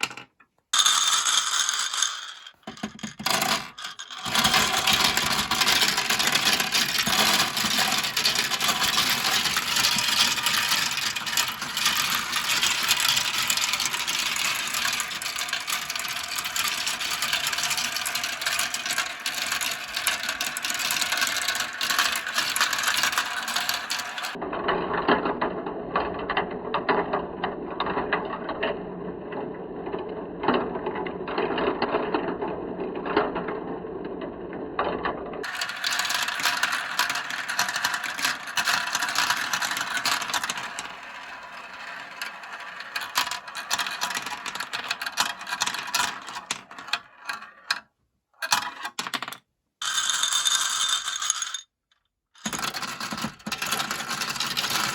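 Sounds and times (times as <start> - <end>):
marbles rattling down plastic track: 0.0 - 25.2, 25.8 - 47.8, 48.4 - 51.7, 52.4 - 54.9.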